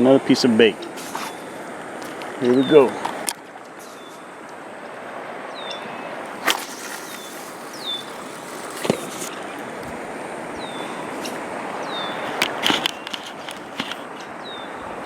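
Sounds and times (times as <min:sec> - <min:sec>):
outdoor background hiss: 0:00.0 - 0:15.0
bird chirping: 0:03.8 - 0:04.3, 0:05.5 - 0:06.2, 0:06.8 - 0:09.8, 0:10.5 - 0:13.5.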